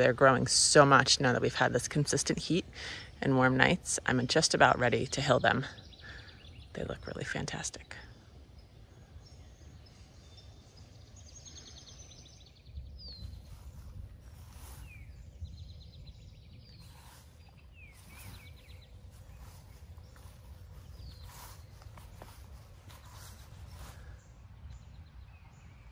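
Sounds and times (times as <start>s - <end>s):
small birds whistling: 8.6s - 24.2s
steady low rumble: 12.6s - 25.9s.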